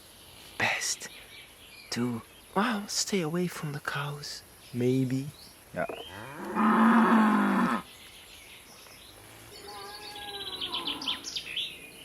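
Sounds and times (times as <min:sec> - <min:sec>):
small bird trilling: 0:05.8 - 0:06.3
cow mooing: 0:05.8 - 0:07.8.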